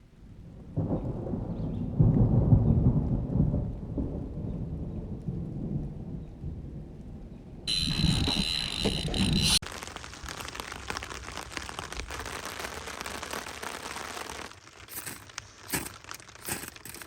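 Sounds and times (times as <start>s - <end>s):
thunder rumbling: 0.4s - 9.8s
rain hissing: 7.7s - 17.0s.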